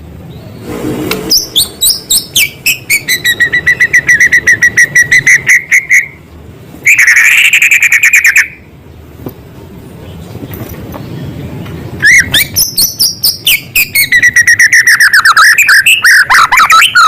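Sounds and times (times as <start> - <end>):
bird rapid trill: 0.4 - 6.2, 12.0 - 17.0
bird whistling repeated notes: 1.3 - 6.2, 6.8 - 8.6, 12.0 - 17.0.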